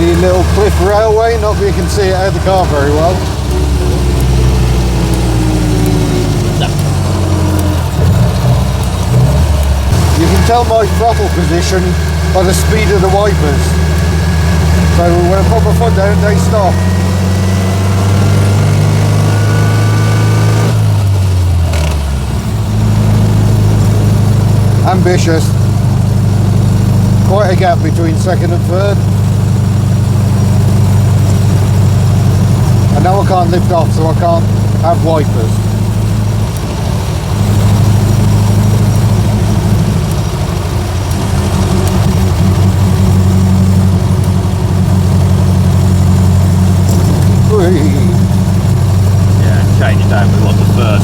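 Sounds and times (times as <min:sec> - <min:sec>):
car engine running under load: 0:00.0 - 0:51.0.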